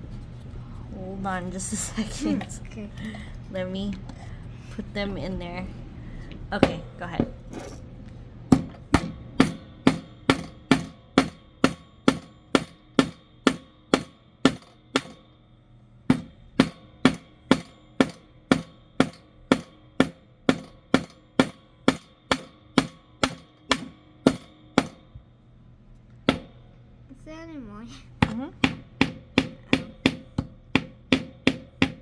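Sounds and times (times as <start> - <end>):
hammer tapping nails into wood: 28.2 - 32.0.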